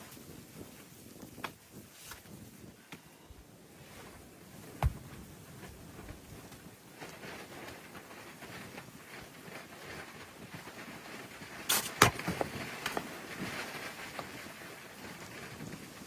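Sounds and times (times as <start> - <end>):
faint clicks and rustling: 3.8 - 16.0.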